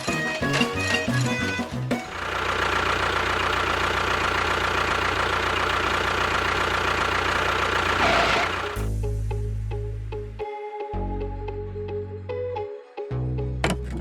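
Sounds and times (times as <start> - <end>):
background music: 0.0 - 2.1, 8.8 - 14.0
small motor whining: 0.0 - 8.8.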